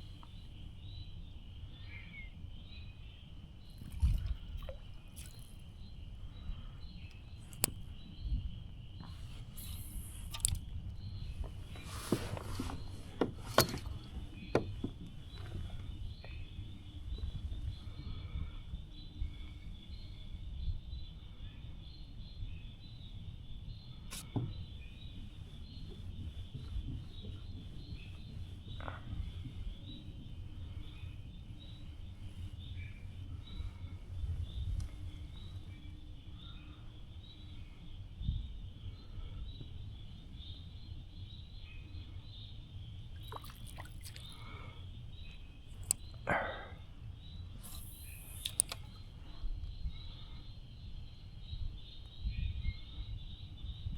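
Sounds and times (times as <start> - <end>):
birds chirping: 0.0 - 53.9
creek rumble: 43.2 - 44.7
light clicks: 47.6 - 49.0.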